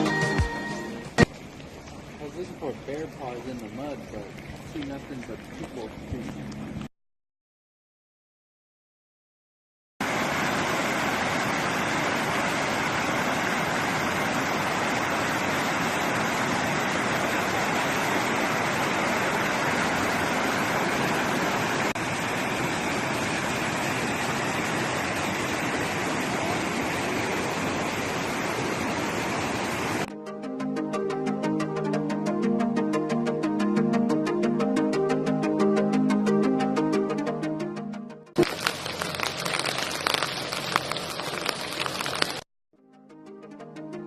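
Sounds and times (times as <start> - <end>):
running water: 0.0 - 6.9, 10.0 - 30.1, 38.4 - 42.5.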